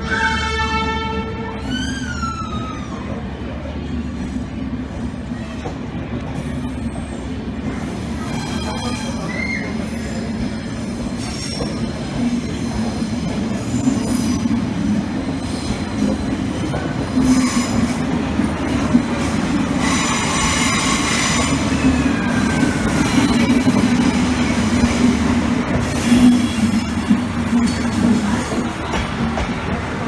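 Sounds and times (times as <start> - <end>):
diesel train engine drone: 0.0 - 30.0
train wheels squealing: 1.5 - 3.2, 8.0 - 18.5, 19.2 - 29.0.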